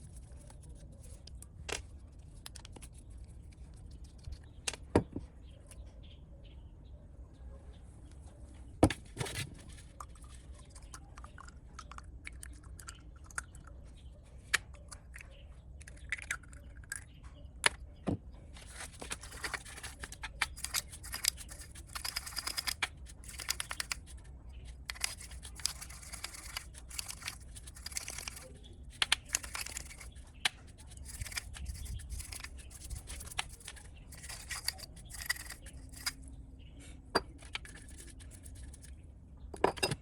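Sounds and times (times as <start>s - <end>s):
scraping and crinkling: 8.9s - 11.0s, 18.4s - 36.3s, 37.3s - 39.0s.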